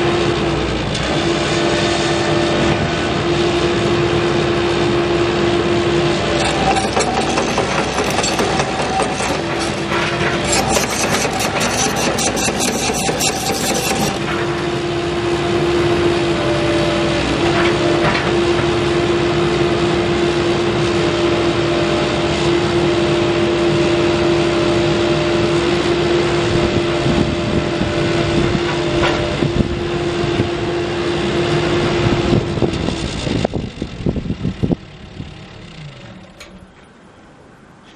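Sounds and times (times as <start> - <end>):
excavator diesel engine running: 0.0 - 37.1
steady whine: 2.8 - 16.4.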